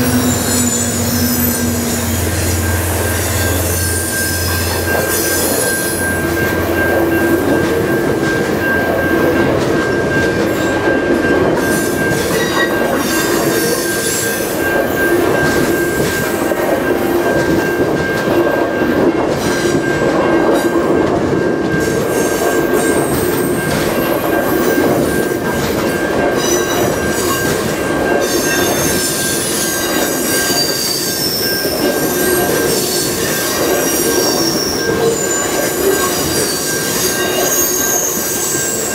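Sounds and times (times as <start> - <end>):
wheels squealing: 0.0 - 7.0, 28.2 - 38.9
train wheels rumbling on rails: 0.0 - 38.9.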